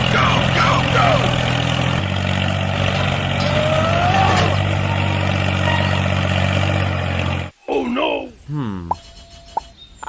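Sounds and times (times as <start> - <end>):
tractor engine running: 0.0 - 7.5.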